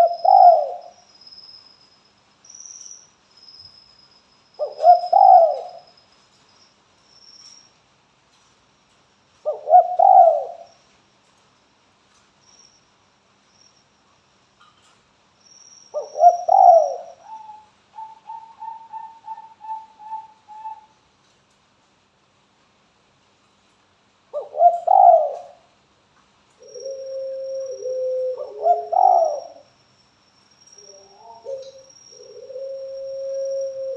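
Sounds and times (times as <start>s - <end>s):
dove cooing: 0.0s - 1.0s, 4.6s - 5.8s, 9.4s - 10.7s, 16.0s - 20.9s, 24.3s - 25.7s, 26.6s - 29.7s, 30.9s - 33.9s.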